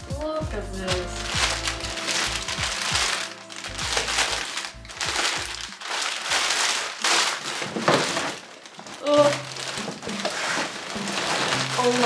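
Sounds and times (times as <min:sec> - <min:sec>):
background music: 0:00.0 - 0:06.4, 0:10.8 - 0:12.0
packaging rustling and crinkling: 0:00.0 - 0:12.0.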